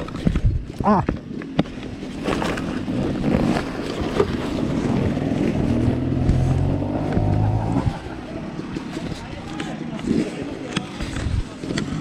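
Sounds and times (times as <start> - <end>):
motorcycle engine running: 4.6 - 8.6.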